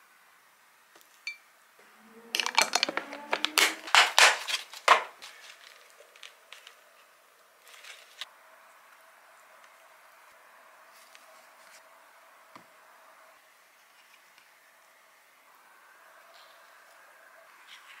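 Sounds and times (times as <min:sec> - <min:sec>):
plastic container crackling: 0:02.4 - 0:06.8.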